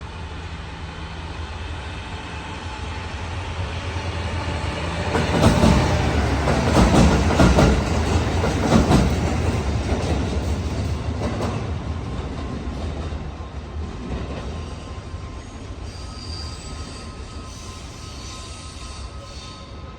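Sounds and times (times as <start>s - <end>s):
train passing rumble: 0.0s - 19.9s
train wheels clacking over rails: 4.2s - 15.2s.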